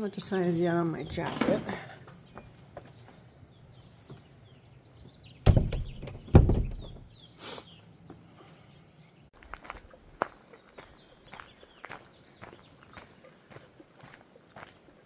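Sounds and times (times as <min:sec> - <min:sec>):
small birds chirping: 0:00.0 - 0:15.0
heavy thumps: 0:05.4 - 0:07.0.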